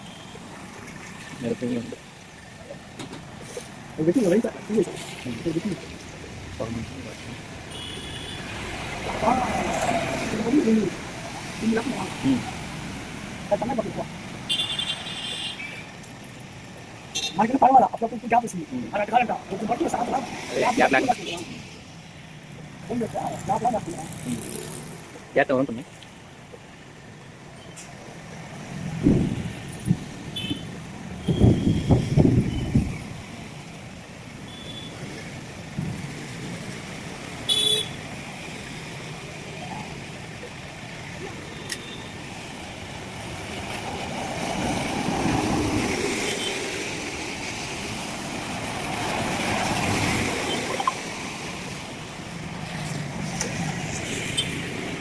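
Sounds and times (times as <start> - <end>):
traffic on a wet road: 0.0 - 55.0
heavy rain: 0.4 - 14.5, 32.2 - 55.0
car horn toots: 7.7 - 8.4, 37.5 - 38.0.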